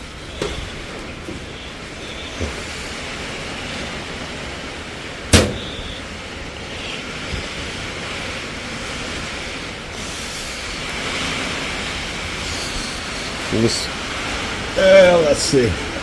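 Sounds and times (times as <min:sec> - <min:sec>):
rain hissing: 0:00.0 - 0:16.0
sharp knock: 0:05.3 - 0:05.9.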